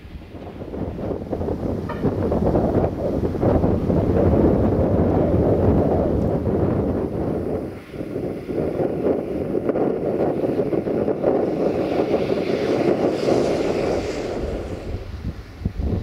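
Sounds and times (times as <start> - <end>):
approaching train rumble: 0.0 - 16.0
wind on microphone: 0.0 - 16.0
train hiss: 7.6 - 8.8, 10.3 - 15.9.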